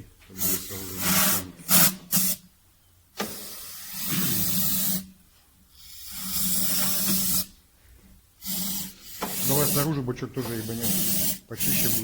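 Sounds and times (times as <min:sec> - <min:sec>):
aerosol spray hissing: 0:08.4 - 0:09.9.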